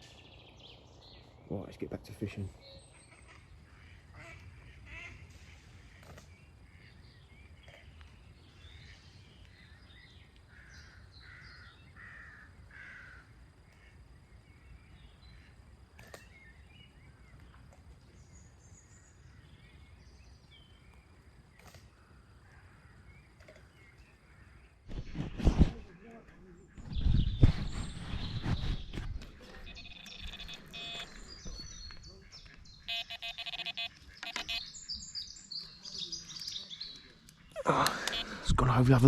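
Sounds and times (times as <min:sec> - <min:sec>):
bird harsh calls: 0:02.0 - 0:14.0, 0:21.6 - 0:39.0
small bird chirps: 0:26.8 - 0:38.3.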